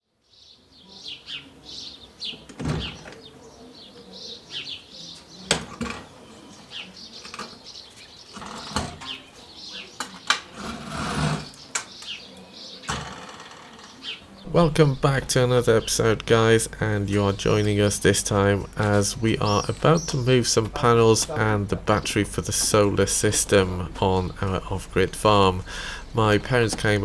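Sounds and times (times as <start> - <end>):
small birds chirping: 0.2 - 10.6, 11.4 - 27.0.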